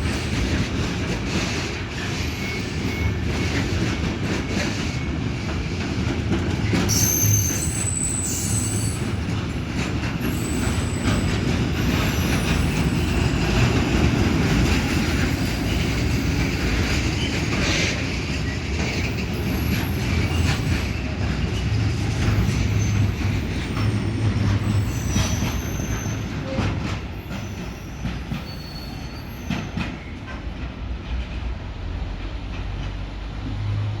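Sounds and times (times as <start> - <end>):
train wheels rumbling on rails: 0.0 - 34.0
wheel squeals: 2.0 - 3.8, 6.6 - 9.2, 10.2 - 13.9, 14.8 - 30.3.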